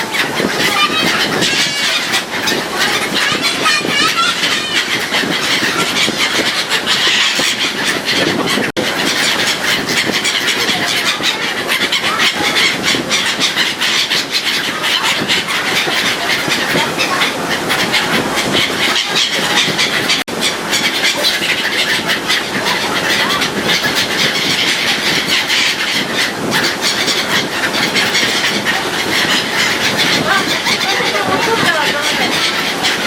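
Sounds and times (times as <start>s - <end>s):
wind rushing: 0.0s - 20.7s, 21.6s - 33.0s
gulls calling: 0.0s - 33.0s.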